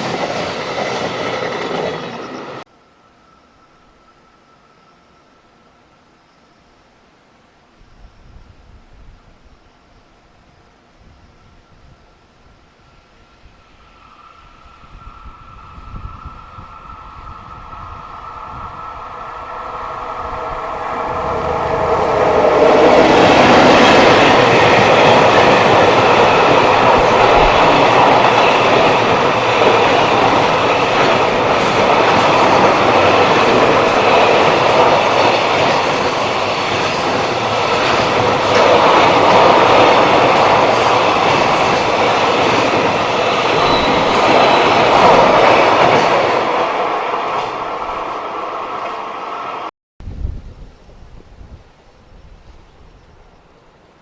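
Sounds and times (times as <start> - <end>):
freight train wheels rushing: 0.0 - 2.7, 13.3 - 49.7.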